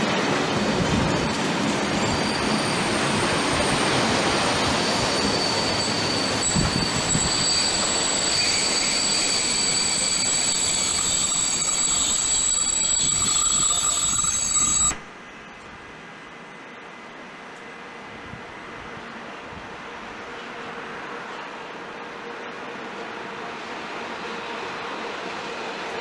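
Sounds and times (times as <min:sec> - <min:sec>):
freight train wheels rumbling: 0:00.0 - 0:15.2
high-pitched wheel squeal: 0:04.5 - 0:15.0.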